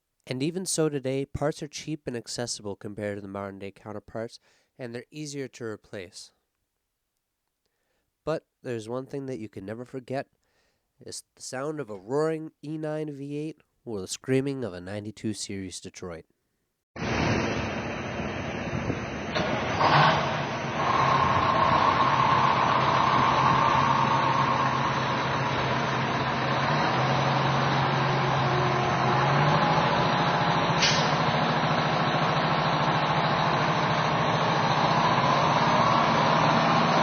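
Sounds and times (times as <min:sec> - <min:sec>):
heavy truck diesel engine: 0:17.0 - 0:37.0
short sharp sound: 0:30.7 - 0:31.3.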